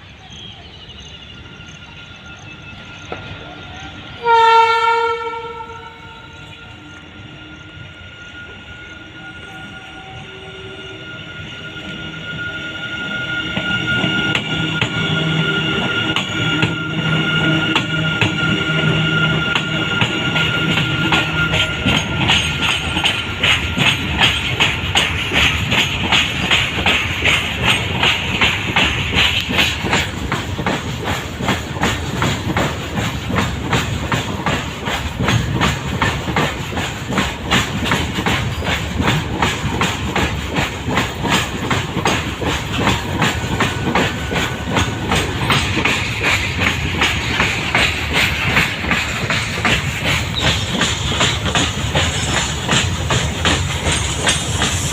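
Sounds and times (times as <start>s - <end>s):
train rumble: 0.0s - 54.9s
locomotive horn blast: 3.5s - 22.3s
wheels clacking over rail joints: 13.5s - 54.9s.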